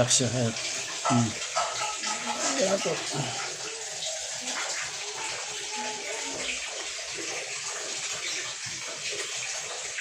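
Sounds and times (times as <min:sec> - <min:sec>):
water running from a tap: 0:00.0 - 0:10.0.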